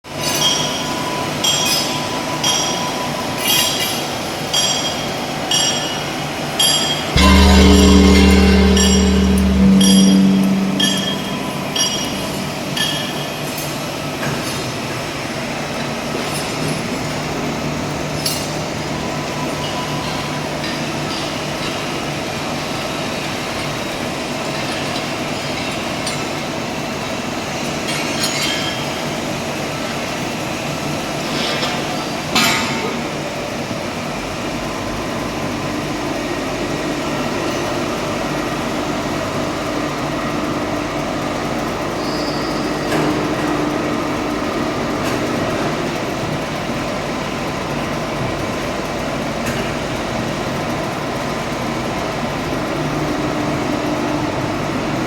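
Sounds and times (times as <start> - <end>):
engine room machinery drone: 0.2 - 55.0
deep rumble: 7.2 - 13.4.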